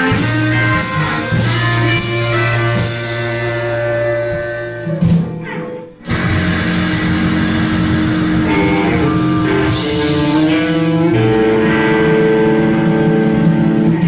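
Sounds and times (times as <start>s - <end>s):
live blues band: 0.0s - 14.0s
cymbal crashes: 6.1s - 11.9s.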